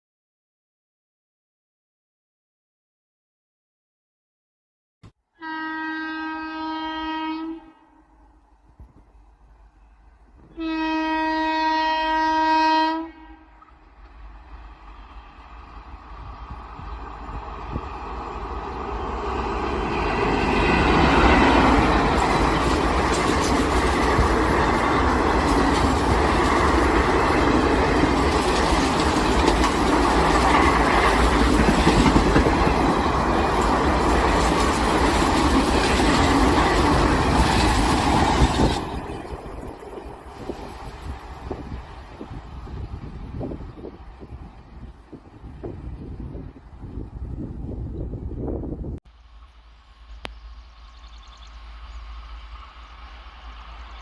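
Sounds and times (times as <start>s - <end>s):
locomotive horn blast: 5.4s - 8.2s, 10.5s - 13.8s
train wheels clattering over rail joints: 20.8s - 41.6s.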